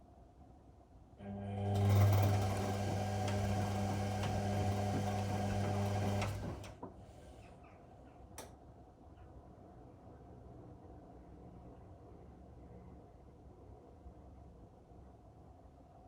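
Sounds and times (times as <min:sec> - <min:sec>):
washing machine humming: 0:01.2 - 0:07.0.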